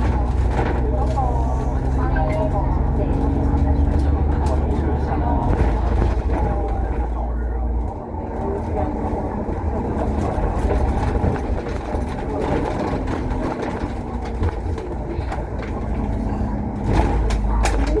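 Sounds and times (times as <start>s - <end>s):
bus engine and road noise: 0.0s - 18.0s
knocks and rattles: 9.1s - 18.0s.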